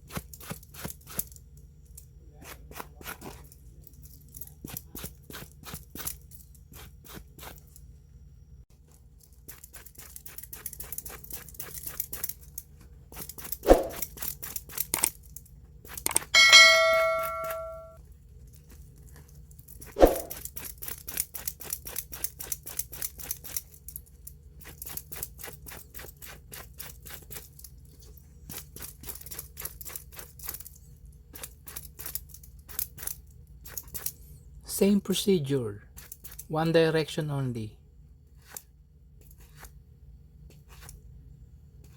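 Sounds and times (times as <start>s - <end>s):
sharp knock: 16.4s - 17.9s
metal piece ringing: 16.4s - 18.0s.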